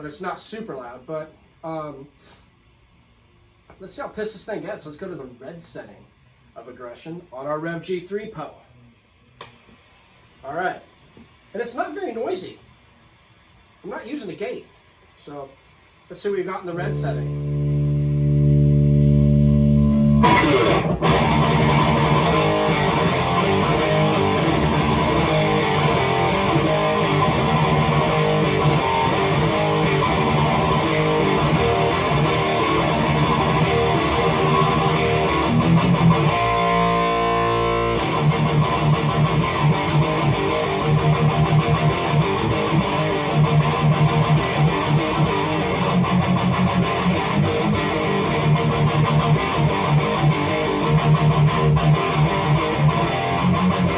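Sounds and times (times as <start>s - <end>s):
distorted electric guitar riffing: 16.7s - 53.9s.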